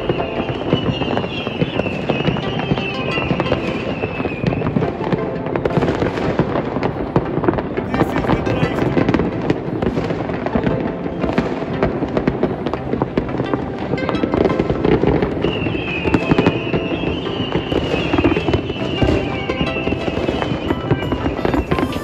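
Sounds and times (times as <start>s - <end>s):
wavering high whistle: 0.0s - 4.9s, 15.4s - 22.0s
fireworks bangs and crackling: 0.0s - 22.0s.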